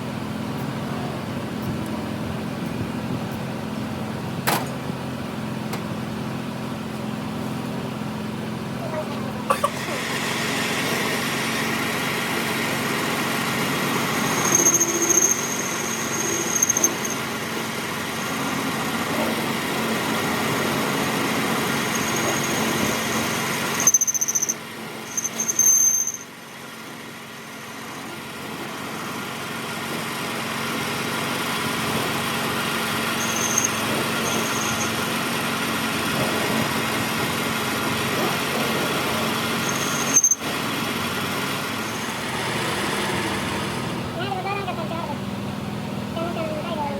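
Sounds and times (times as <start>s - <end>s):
workshop machine humming: 0.0s - 46.9s
short high-pitched squeals: 13.7s - 18.7s, 21.3s - 26.6s, 32.8s - 35.4s, 38.9s - 40.7s, 41.5s - 42.4s.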